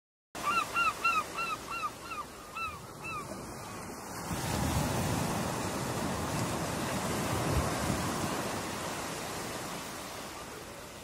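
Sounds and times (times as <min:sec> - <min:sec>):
bird calling: 0:00.4 - 0:03.8
ocean surf: 0:00.4 - 0:11.0.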